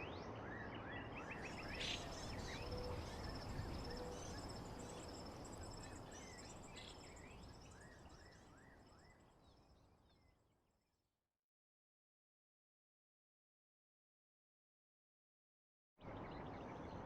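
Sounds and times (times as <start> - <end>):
high insect trill: 1.6 - 7.4.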